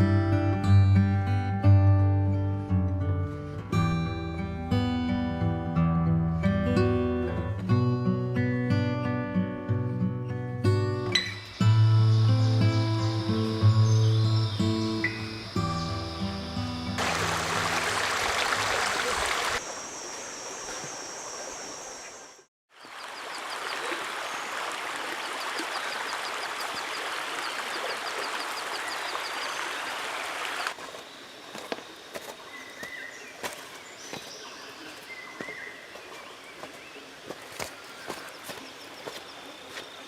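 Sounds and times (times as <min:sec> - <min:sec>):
high insect chirp: 0:11.1 - 0:33.8, 0:34.4 - 0:40.0.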